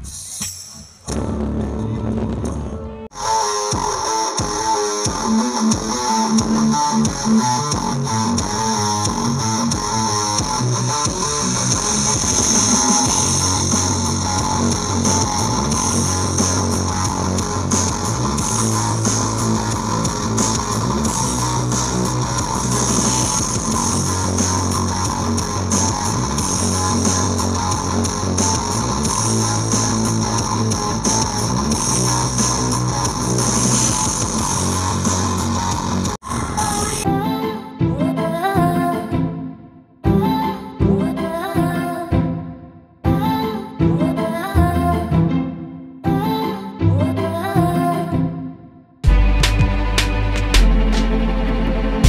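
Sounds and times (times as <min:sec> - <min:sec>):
guitar rock music: 0:01.1 - 0:36.2.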